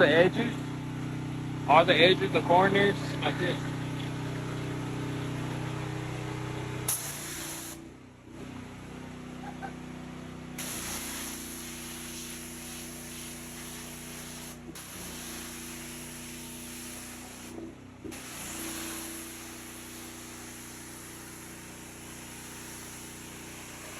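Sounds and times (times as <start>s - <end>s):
pressure washer engine humming: 0.0s - 23.9s
water jet hissing on concrete: 6.9s - 7.8s, 10.6s - 23.9s.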